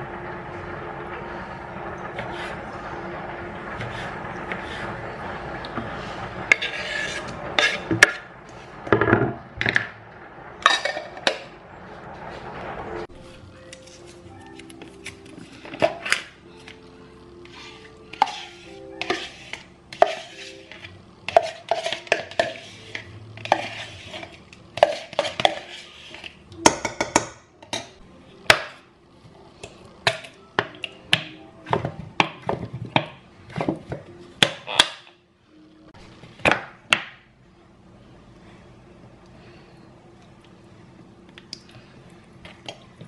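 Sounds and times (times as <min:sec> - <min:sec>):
soft background music: 0:12.9 - 0:24.2, 0:26.0 - 0:36.3
dishes and cutlery clinking: 0:17.4 - 0:28.8.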